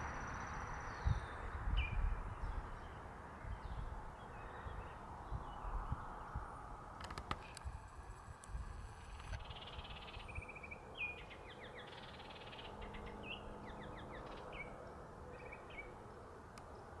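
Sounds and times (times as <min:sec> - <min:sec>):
songbird singing trills: 0:00.0 - 0:06.6, 0:09.3 - 0:17.0
wind rumble on microphone: 0:00.0 - 0:11.3.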